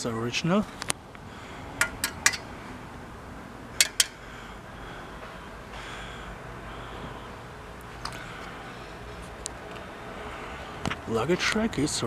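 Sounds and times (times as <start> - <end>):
light metallic clicks of bicycle parts: 0.8 - 1.2, 1.8 - 2.5, 3.8 - 4.2, 7.8 - 8.6.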